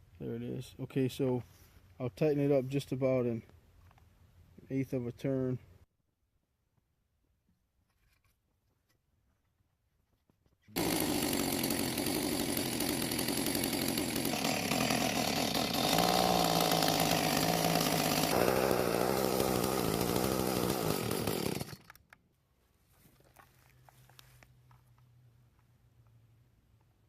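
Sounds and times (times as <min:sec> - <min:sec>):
chainsaw running: 0:10.8 - 0:22.1.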